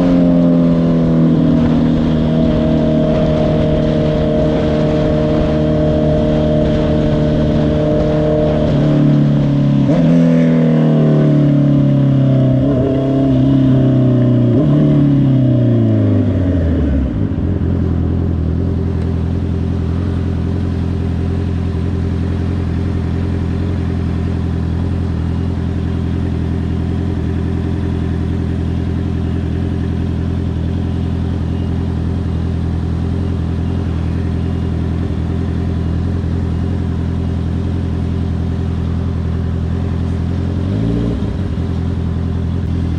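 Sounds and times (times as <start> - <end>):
motorcycle engine slowing to idle: 17.3 - 40.7.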